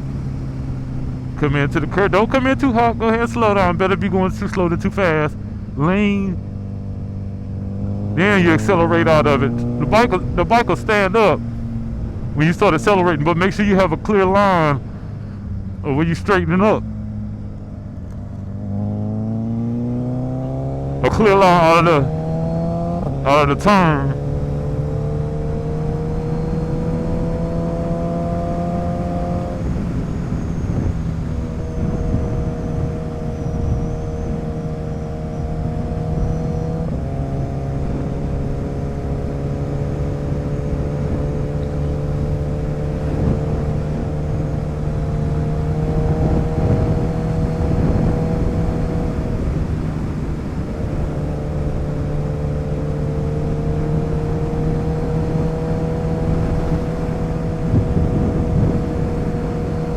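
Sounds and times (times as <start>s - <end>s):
motorcycle engine revving: 0.0s - 59.9s
wind rush: 42.7s - 51.9s, 53.8s - 59.9s.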